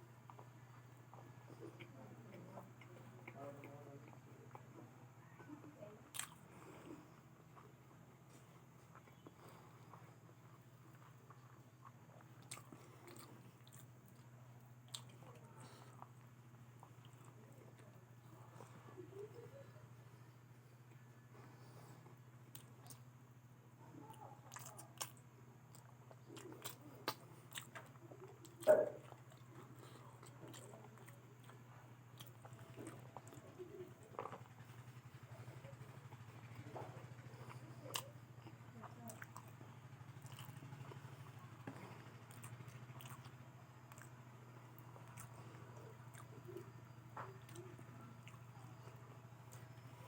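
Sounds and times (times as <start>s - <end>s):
chewing fried potatoes: 0.0s - 50.0s
steady low hum: 0.0s - 50.0s
wet mouth clicks: 25.8s - 27.9s, 37.4s - 38.2s.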